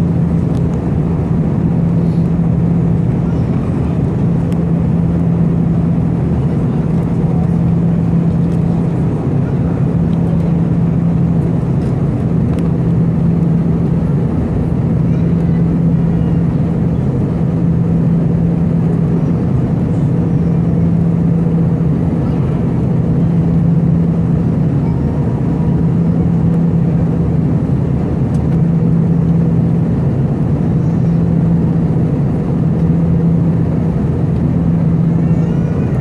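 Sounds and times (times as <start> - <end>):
airplane cabin engine roar: 0.0 - 36.0
constant low hum: 0.0 - 36.0.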